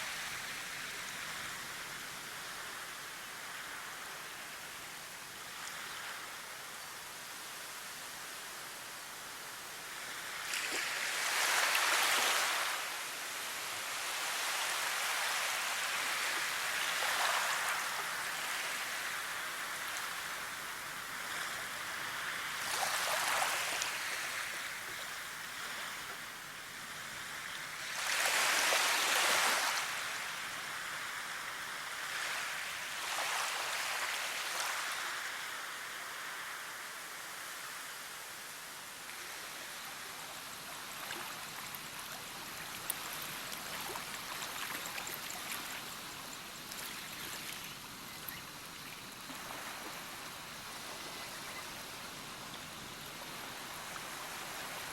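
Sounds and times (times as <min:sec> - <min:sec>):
flowing water rushing: 0:38.5 - 0:54.9.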